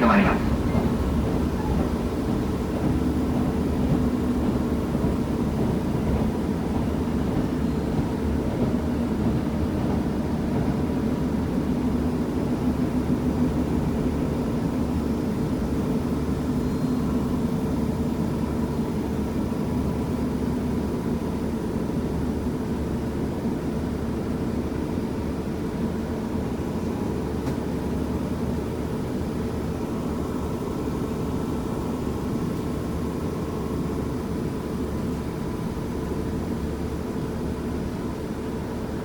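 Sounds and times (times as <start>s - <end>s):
diesel engine drone: 0.0s - 4.0s
wheels rumbling on rail: 0.0s - 39.0s.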